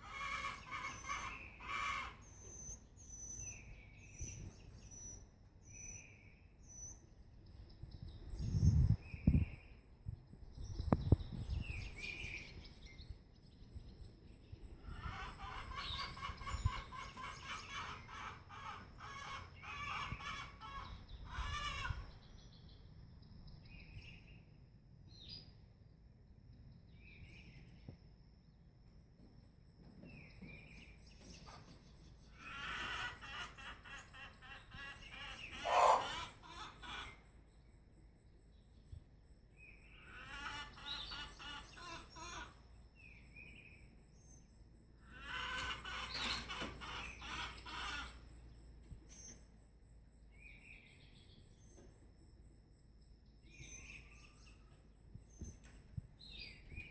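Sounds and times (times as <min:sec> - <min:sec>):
chickens calling: 0:00.0 - 0:03.0, 0:14.8 - 0:22.2, 0:31.5 - 0:37.4, 0:40.0 - 0:42.7, 0:45.0 - 0:48.5
bird chirps: 0:00.0 - 0:09.8, 0:30.0 - 0:56.9.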